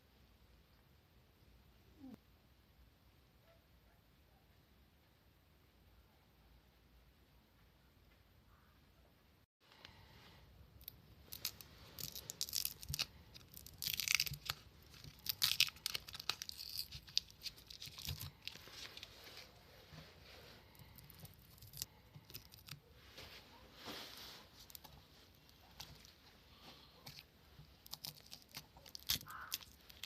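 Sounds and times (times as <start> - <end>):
scratching and crinkling: 10.8 - 30.0.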